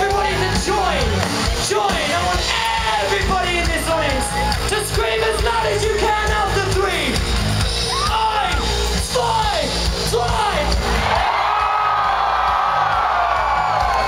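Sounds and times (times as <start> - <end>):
live rock band playing: 0.0 - 11.2.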